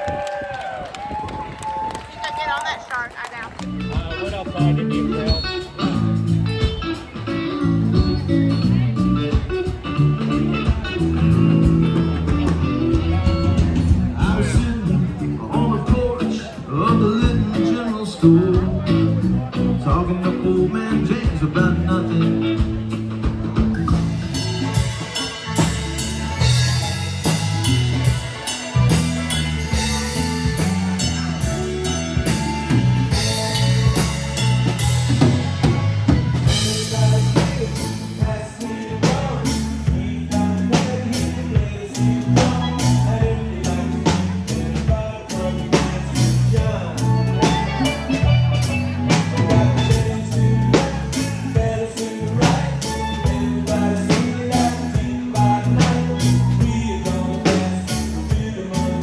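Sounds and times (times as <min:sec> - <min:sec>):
live band music: 0:02.2 - 0:59.0
drum kit beat: 0:02.6 - 0:59.0
repeating bass line: 0:03.5 - 0:59.0.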